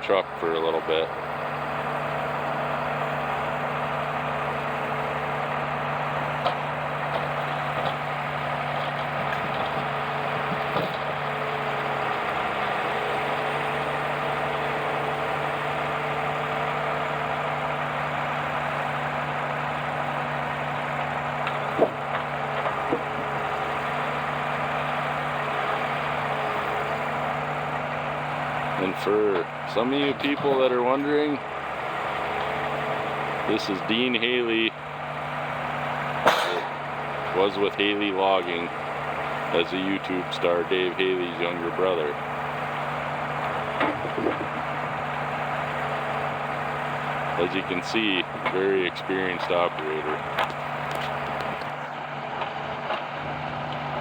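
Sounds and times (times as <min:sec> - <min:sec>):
diesel engine idling: 0:00.0 - 0:54.0
sharp engine knocks: 0:05.9 - 0:27.2, 0:35.2 - 0:39.7, 0:42.2 - 0:54.0.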